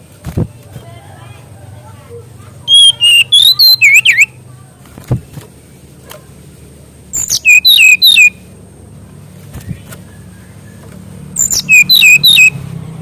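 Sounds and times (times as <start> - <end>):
songbird whistling: 2.7 - 4.4, 7.1 - 8.4, 9.6 - 12.6.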